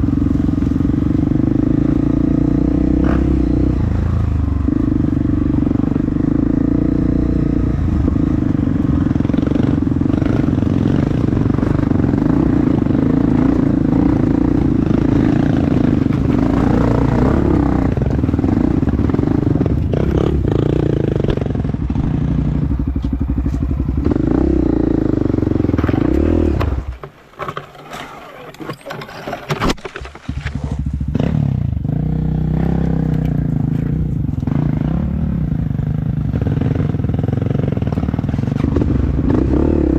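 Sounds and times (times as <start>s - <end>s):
dirt bike engine revving: 0.0s - 29.6s, 30.2s - 39.9s
scattered clatter: 25.7s - 31.2s.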